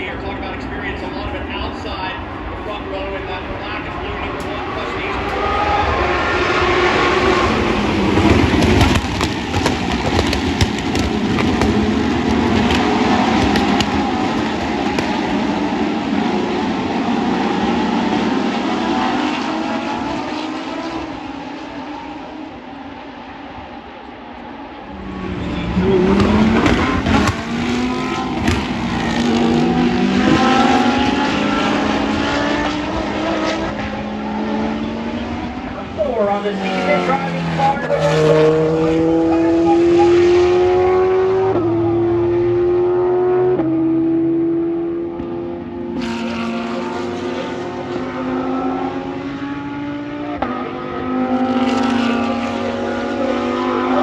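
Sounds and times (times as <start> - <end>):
race cars passing: 0.0 - 54.0
sharp cracks: 8.4 - 15.6.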